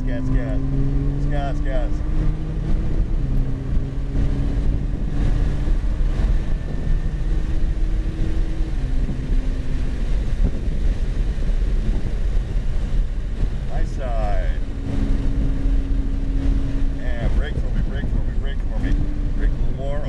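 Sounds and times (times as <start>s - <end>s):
car engine accelerating: 0.0s - 20.0s
road and wind rumble: 0.0s - 20.0s.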